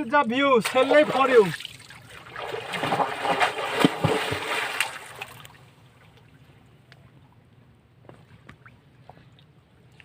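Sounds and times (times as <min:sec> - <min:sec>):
river water splashing: 0:00.6 - 0:06.6.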